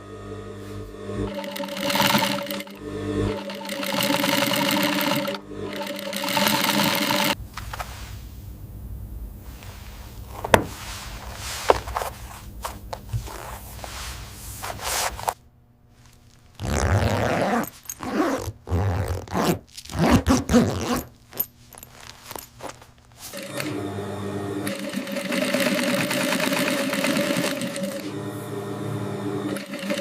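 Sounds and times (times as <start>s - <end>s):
low steady hum: 7.4s - 23.3s.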